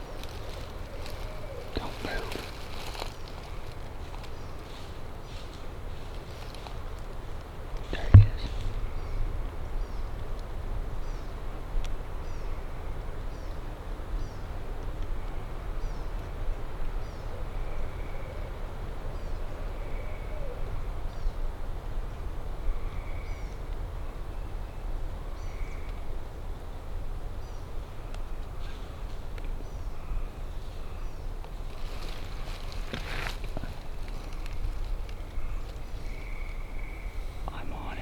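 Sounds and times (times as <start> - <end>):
songbird chirping: 0.0 - 7.2, 7.8 - 11.4, 27.4 - 38.0.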